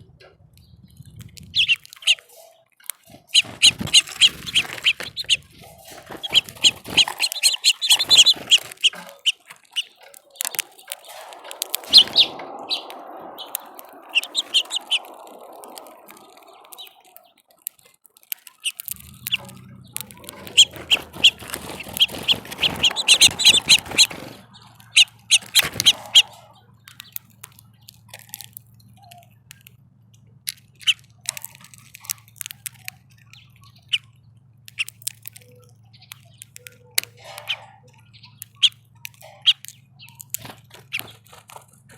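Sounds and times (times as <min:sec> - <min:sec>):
small songbirds chirping: 0:00.0 - 0:41.9
sharp clicks: 0:00.5 - 0:41.9.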